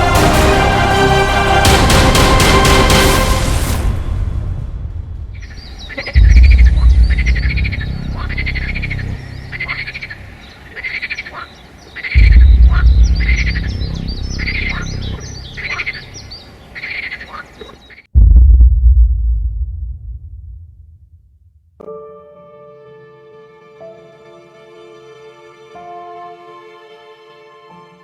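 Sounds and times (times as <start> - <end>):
deep low swells: 0.0 - 10.4, 12.2 - 16.2, 18.2 - 21.6
animal calls: 5.6 - 13.7, 14.4 - 18.1
high sharp chirps: 12.1 - 16.9.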